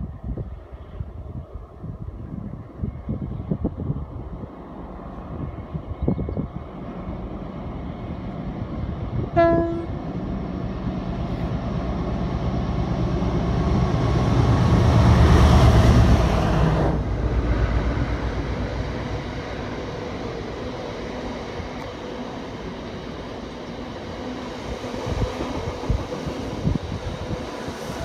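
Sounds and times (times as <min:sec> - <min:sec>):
train horn blast: 0:09.4 - 0:10.0.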